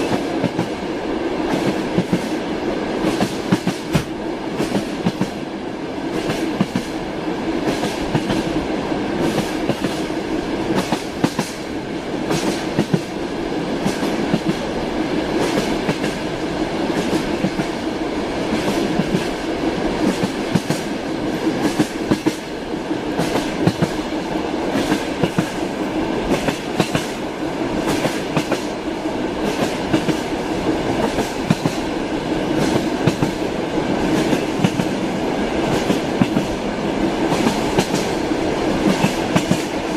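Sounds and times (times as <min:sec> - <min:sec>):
train wheels clattering: 0:03.0 - 0:05.4, 0:12.3 - 0:13.2, 0:20.0 - 0:22.5, 0:23.1 - 0:27.2, 0:27.8 - 0:31.9, 0:37.2 - 0:39.8.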